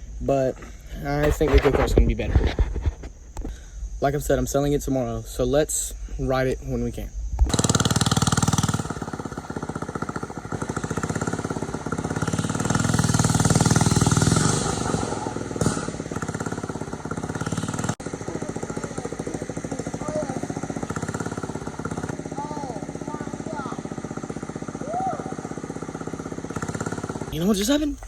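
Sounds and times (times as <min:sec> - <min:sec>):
mini bike engine running: 0:01.2 - 0:03.0, 0:07.5 - 0:28.0.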